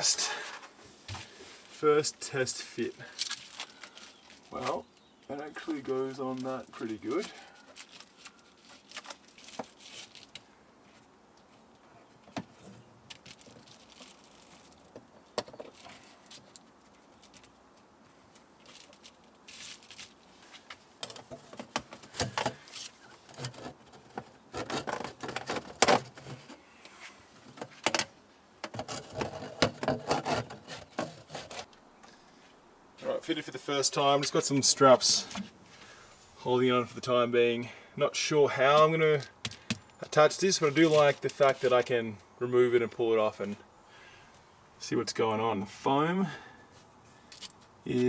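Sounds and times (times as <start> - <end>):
handling clicks and scrapes: 3.1 - 31.8.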